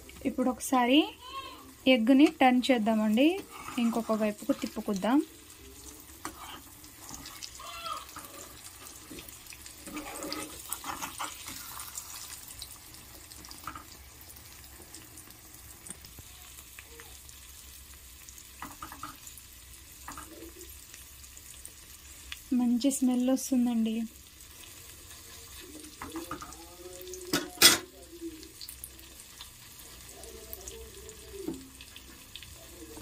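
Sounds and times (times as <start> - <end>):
eggs sizzling in oil: 0.0 - 33.0
metal spoon scraping a pan: 3.2 - 5.0, 6.0 - 12.4.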